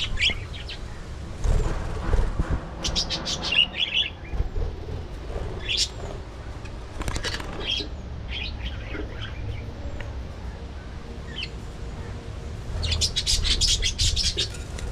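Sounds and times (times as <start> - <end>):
budgerigars chirping: 12.8 - 14.6.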